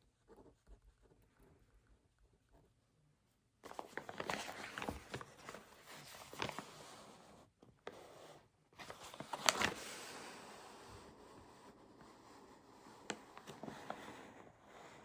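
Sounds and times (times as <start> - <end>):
paper rustling: 3.6 - 8.0, 8.8 - 11.0, 12.0 - 15.0.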